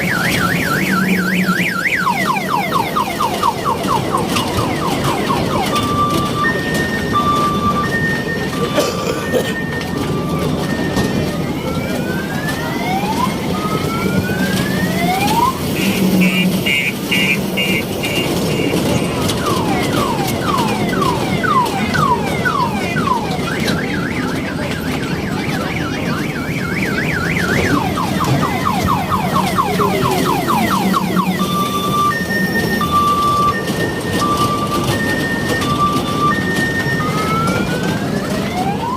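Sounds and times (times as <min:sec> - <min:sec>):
electronic siren alarm tones: 0:25.6 - 0:38.9.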